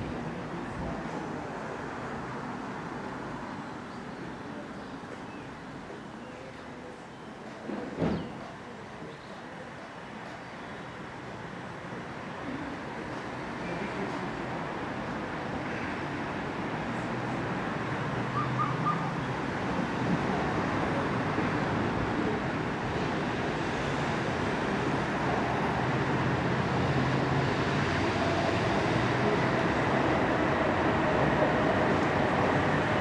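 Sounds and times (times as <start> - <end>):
electric train rumble: 19.4 - 33.0.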